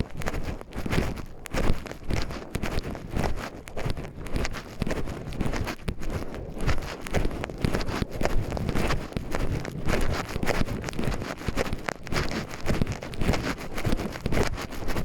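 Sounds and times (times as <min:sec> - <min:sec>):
footsteps crunching on trail: 0:00.0 - 0:15.0
wind buffeting microphone: 0:00.0 - 0:15.0.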